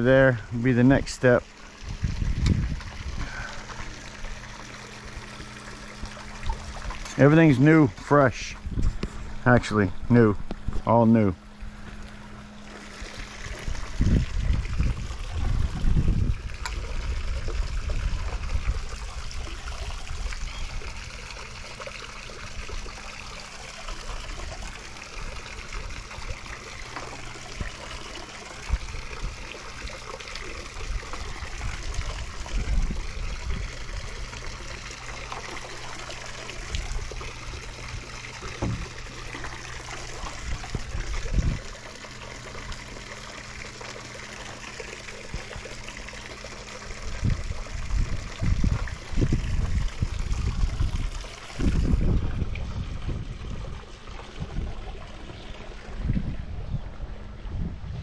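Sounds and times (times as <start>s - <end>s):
pool water trickling and splashing: 0.0s - 58.0s
low rumbles: 36.1s - 41.6s.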